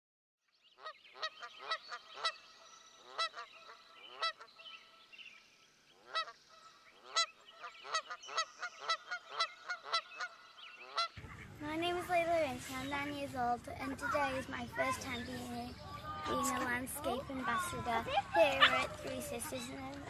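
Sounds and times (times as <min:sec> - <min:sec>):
geese honking: 0:00.8 - 0:05.1, 0:06.0 - 0:12.2.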